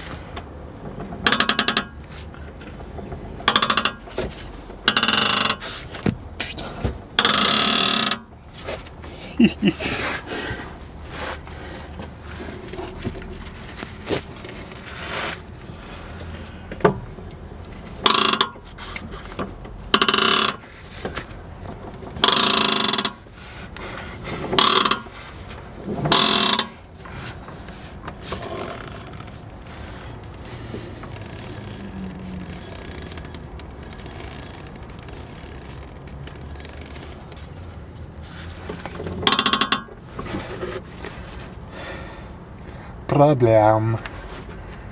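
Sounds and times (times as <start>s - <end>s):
bearings creaking and grating: 0.0s - 42.8s.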